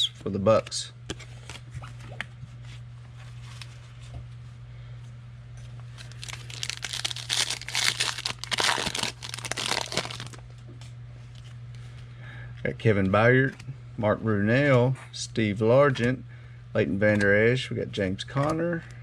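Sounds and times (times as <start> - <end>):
steady low hum: 0.0 - 19.0
foil wrapper tearing and crinkling: 6.0 - 10.4.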